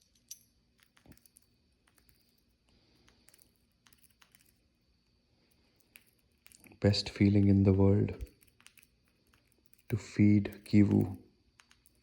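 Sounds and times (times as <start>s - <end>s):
budgie cracking seeds: 0.7s - 12.0s.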